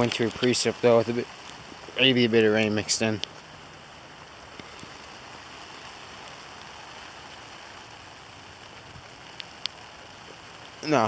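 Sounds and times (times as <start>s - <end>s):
hiss of sleet and rain falling: 0.0s - 11.0s
ice pellets ticking: 8.7s - 11.0s.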